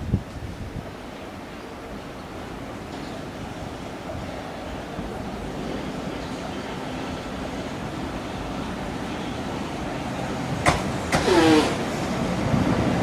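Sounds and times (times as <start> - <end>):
train rumbling: 0.0 - 13.0
short falling squeal: 11.2 - 11.8.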